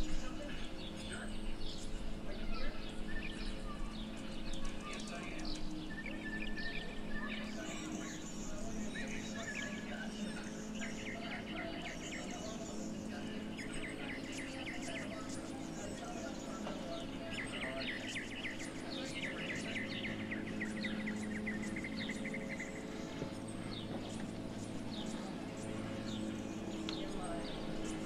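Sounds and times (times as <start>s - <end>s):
birds chirping trills: 0.0s - 28.0s
steady low hum: 0.0s - 28.0s.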